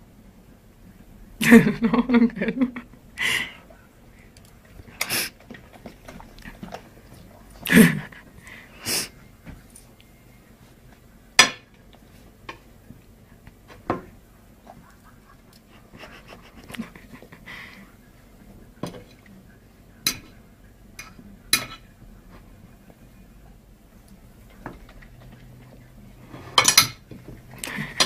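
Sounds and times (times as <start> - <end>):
dish clinking and knocking: 26.5 - 27.2.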